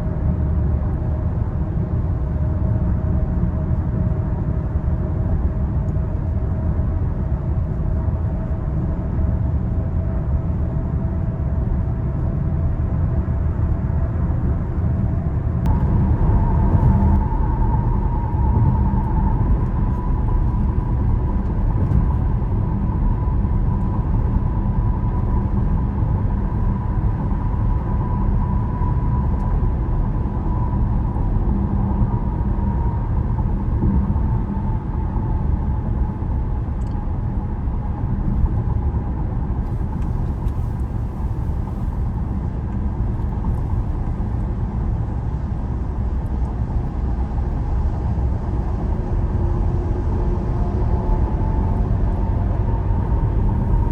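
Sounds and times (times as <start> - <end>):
tyre and engine rumble: 15.5 - 26.8
thin steady whine: 15.6 - 45.0.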